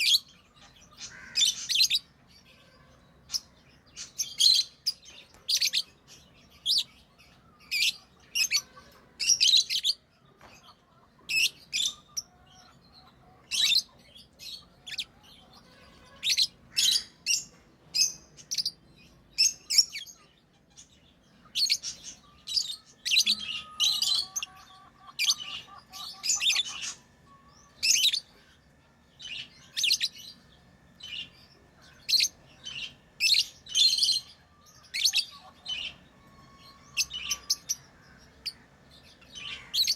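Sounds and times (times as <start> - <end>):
lovebirds chirping: 0.0 - 39.9
faint steady tone: 22.0 - 35.1.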